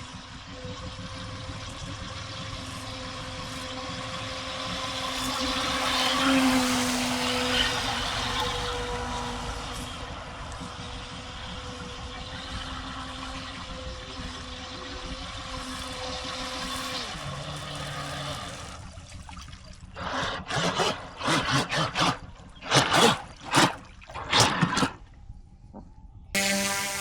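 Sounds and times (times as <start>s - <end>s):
model boat motor whine: 0.0s - 25.5s, 26.4s - 27.0s
loud bursts of water noise: 1.6s - 10.3s, 11.0s - 25.0s
water splashing: 1.7s - 9.8s, 14.6s - 25.1s.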